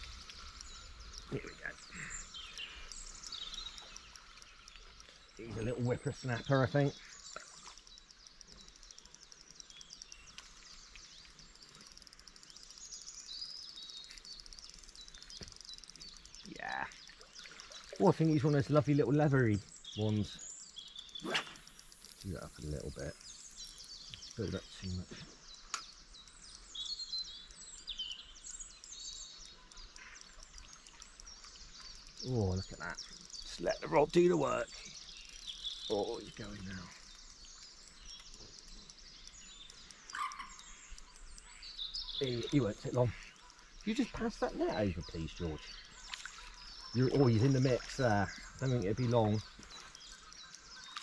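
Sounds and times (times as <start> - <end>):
birds chirping and trilling: 0.0 - 51.0
songbirds singing: 0.0 - 51.0
bird whistle: 21.1 - 21.7.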